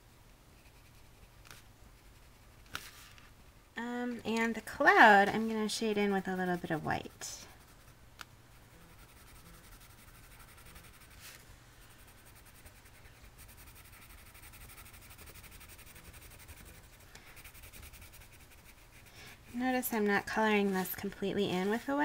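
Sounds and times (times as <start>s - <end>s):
low steady hum: 0.0s - 22.0s
pencil scratching on cardstock: 8.7s - 11.4s, 12.0s - 19.9s.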